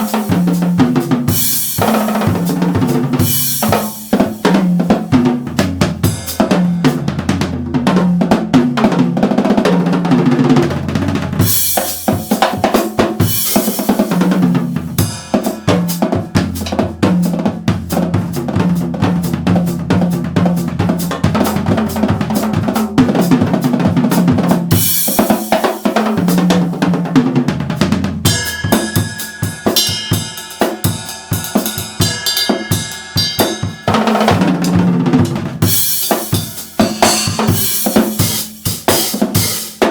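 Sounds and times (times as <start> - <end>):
drum kit groove: 0.0 - 39.9
backing track with bass line: 13.2 - 25.1.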